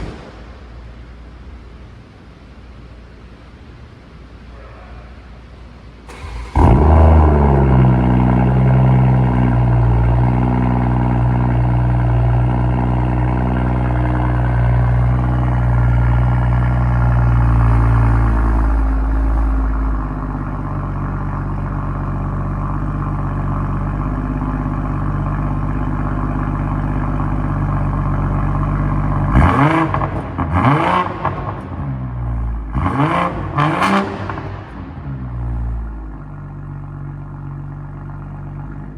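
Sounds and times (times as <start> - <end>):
car engine starting and idling: 5.4 - 38.9
engine revving in blips: 6.1 - 14.0, 29.2 - 35.7.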